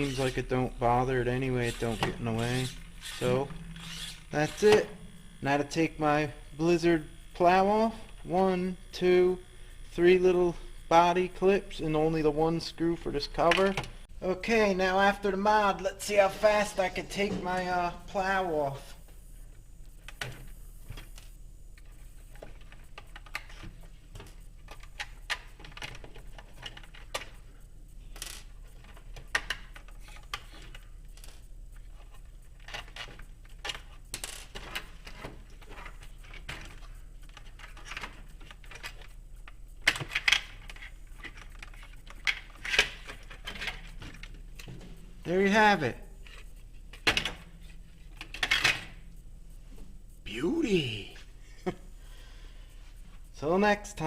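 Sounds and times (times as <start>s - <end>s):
small clicks and metal clinks: 21.0s - 44.7s.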